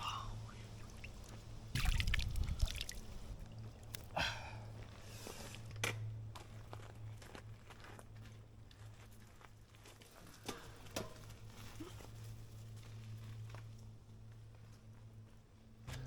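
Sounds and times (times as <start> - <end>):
creek water splashing and dripping: 0.6 - 4.2.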